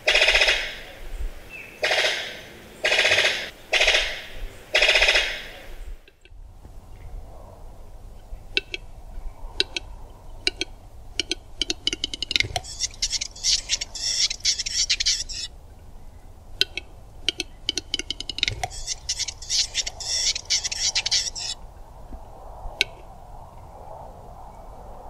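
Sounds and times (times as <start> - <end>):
bird pop: 9.6 - 14.9, 16.6 - 21.3
bird clicks speeding into rattle: 9.6 - 15.5, 16.6 - 21.6
bird hissing scraping notes: 11.2 - 15.5, 16.6 - 21.6.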